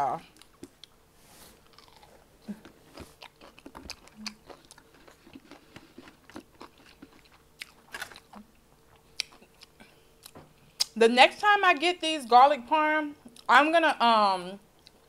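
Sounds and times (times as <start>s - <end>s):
chewing and biting: 1.6s - 10.9s.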